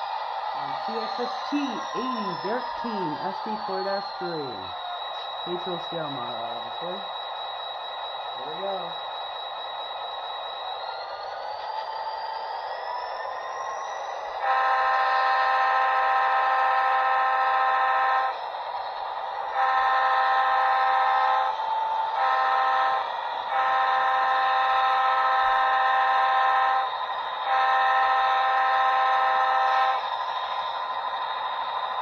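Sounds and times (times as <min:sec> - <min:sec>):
diesel engine running sound: 0:00.0 - 0:32.0
model locomotive air horn: 0:14.4 - 0:18.4, 0:19.4 - 0:30.2.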